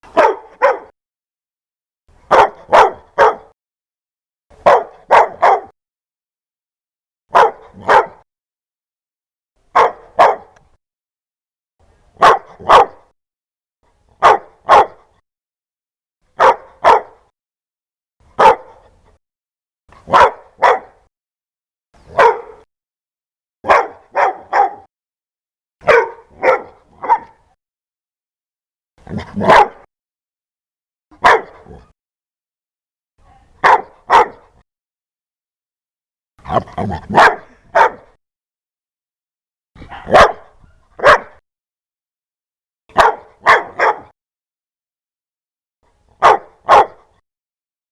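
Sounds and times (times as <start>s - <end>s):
dog barking: 0.1s - 0.9s, 2.3s - 3.6s, 4.6s - 5.8s, 7.3s - 8.2s, 9.7s - 10.6s, 12.2s - 13.1s, 14.2s - 15.2s, 16.4s - 17.3s, 18.4s - 18.9s, 20.0s - 21.1s, 22.1s - 22.7s, 23.6s - 24.9s, 25.8s - 27.5s, 29.1s - 29.9s, 31.2s - 31.9s, 33.6s - 34.6s, 36.5s - 38.2s, 39.8s - 41.4s, 42.9s - 44.1s, 46.2s - 47.2s.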